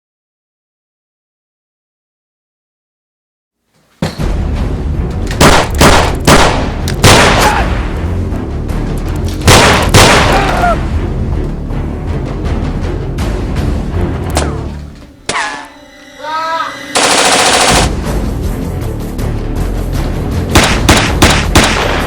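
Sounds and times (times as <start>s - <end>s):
dramatic music with low pulse: 4.2s - 22.0s
sharp boom hits: 9.5s - 10.5s.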